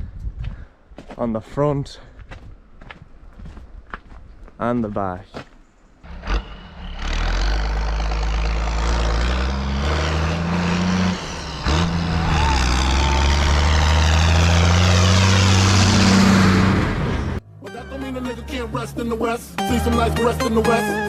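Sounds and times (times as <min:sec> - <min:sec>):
tractor diesel engine running: 0:06.4 - 0:17.4.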